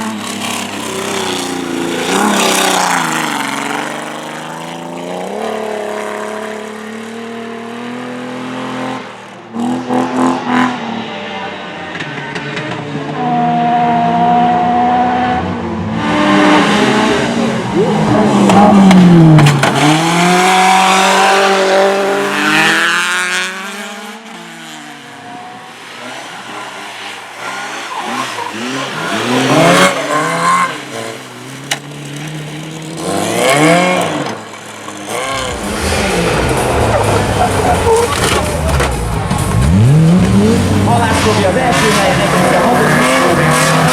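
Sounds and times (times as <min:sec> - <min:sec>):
rally cars passing at speed: 0:00.0 - 0:43.9
engine revving with gear changes: 0:11.9 - 0:43.9.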